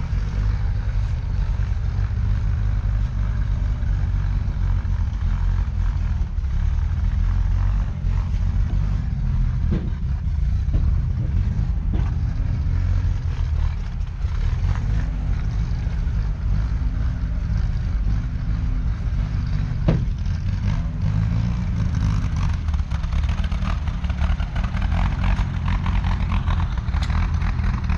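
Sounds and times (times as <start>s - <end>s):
diesel engine running: 0.0s - 27.9s
short knocks: 19.6s - 20.6s.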